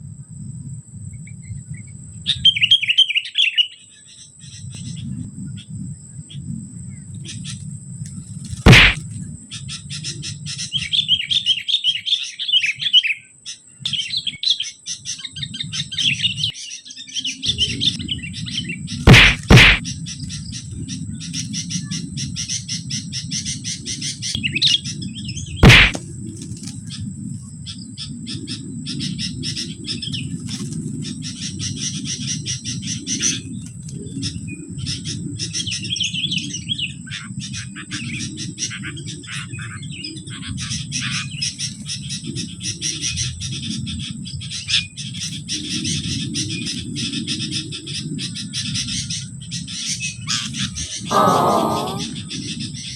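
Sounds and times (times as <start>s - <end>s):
bulbuls chirping: 8.7s - 9.0s
loud sharp knocks: 8.7s - 9.0s, 19.1s - 19.8s, 25.6s - 26.0s.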